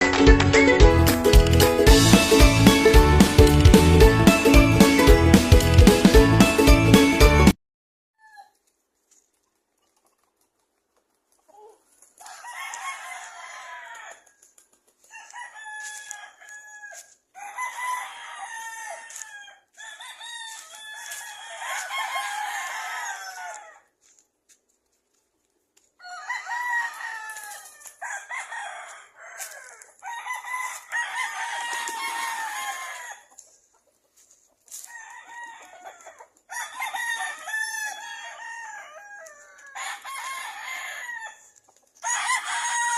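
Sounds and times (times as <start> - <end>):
rooster crowing: 12.2 - 14.3, 15.1 - 23.9, 26.0 - 33.4, 34.8 - 42.9.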